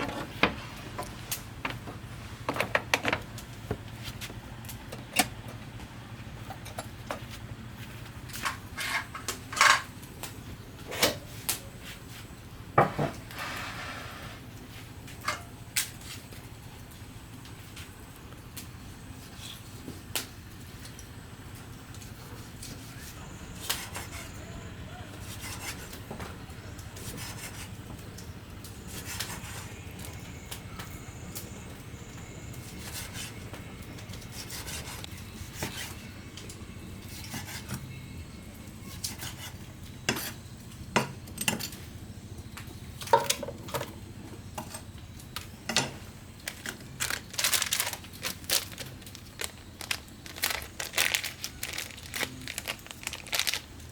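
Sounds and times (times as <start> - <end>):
low background hum: 0.0 - 53.9.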